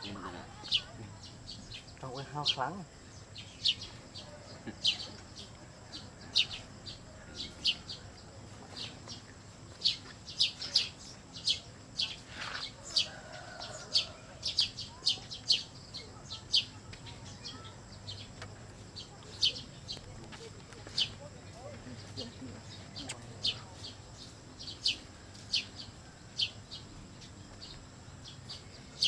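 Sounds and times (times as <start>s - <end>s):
bird chirping: 0.0s - 29.0s.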